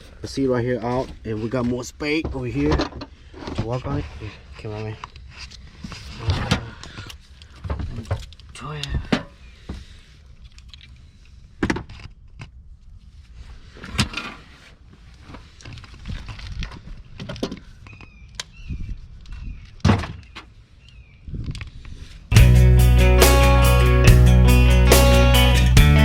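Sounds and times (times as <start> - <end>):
knocks and clunks of tools: 2.1 - 4.0.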